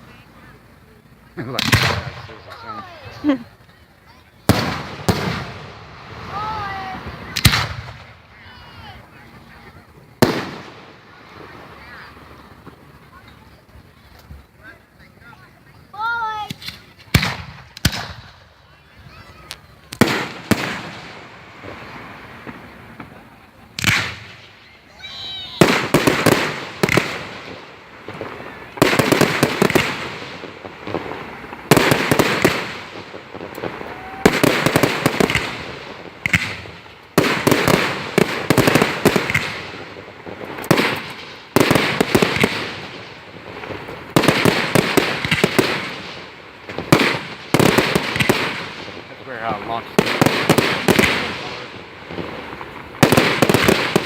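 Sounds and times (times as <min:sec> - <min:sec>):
firework bangs: 0:00.0 - 0:54.0
firework crackling: 0:00.0 - 0:54.0
firework whistle: 0:31.0 - 0:35.5.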